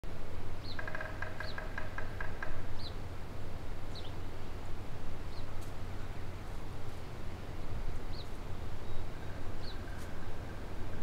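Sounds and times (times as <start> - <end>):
background hiss: 0.1 - 11.0
birds chirping: 0.6 - 3.0, 3.9 - 4.4, 5.2 - 11.0.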